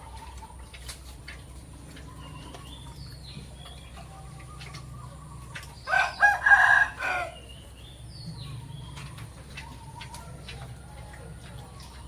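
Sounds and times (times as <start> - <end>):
small birds chirping: 0.0 - 12.0
rooster crowing: 5.9 - 7.4.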